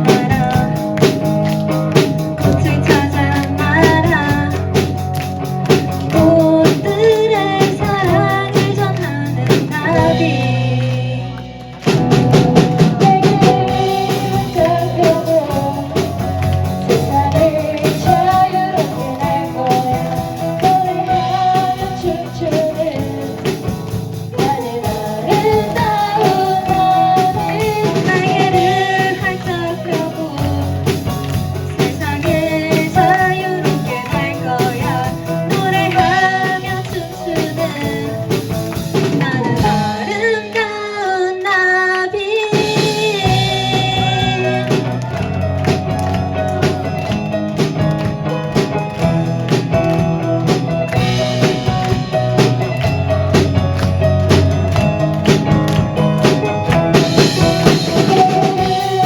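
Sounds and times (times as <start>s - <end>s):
person singing: 0.0s - 45.4s, 54.2s - 59.0s
live rock band playing: 0.0s - 59.0s.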